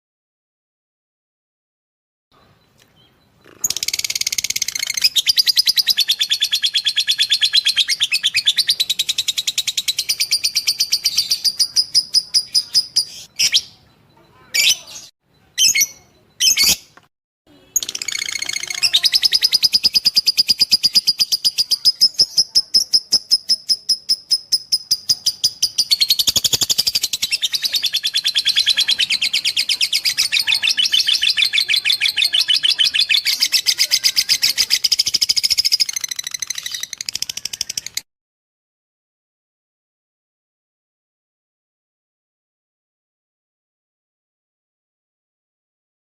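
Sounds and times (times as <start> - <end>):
lovebird chattering trill: 3.1 - 16.9, 17.7 - 38.0.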